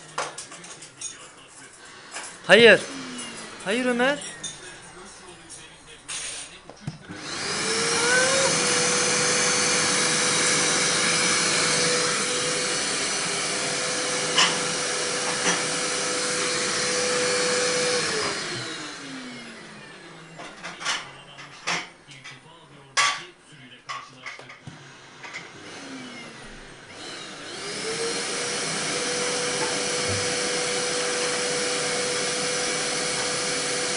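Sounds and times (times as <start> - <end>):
vacuum cleaner motor whine: 1.9 - 4.7, 6.2 - 20.8, 24.6 - 33.9.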